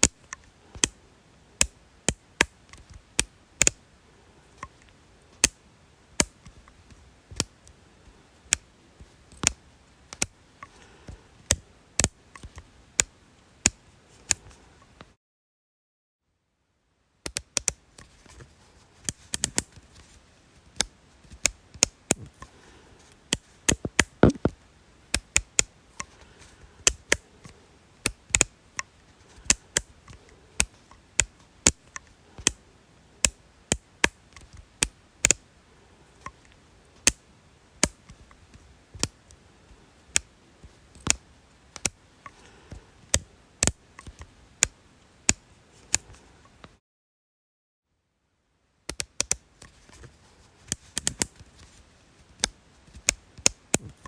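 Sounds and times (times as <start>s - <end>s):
sharp crisp clicks: 9.3s - 10.8s, 23.3s - 26.2s, 26.8s - 32.6s, 33.2s - 35.4s, 40.1s - 46.8s, 48.9s - 49.7s.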